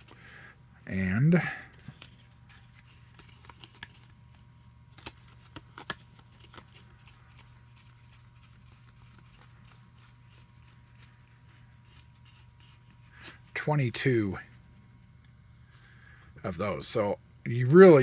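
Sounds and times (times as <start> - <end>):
low steady hum: 0.0 - 18.0
trading cards flipped through: 1.7 - 13.1.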